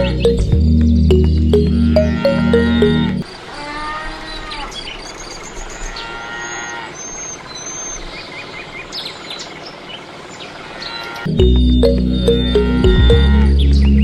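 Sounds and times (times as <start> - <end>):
birds chirping: 0.0 - 3.4, 10.4 - 14.0.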